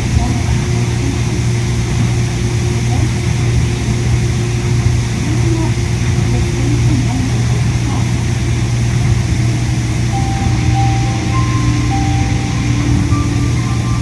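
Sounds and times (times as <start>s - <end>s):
monorail car hum: 3.8s - 14.0s
short high tones: 10.1s - 14.0s.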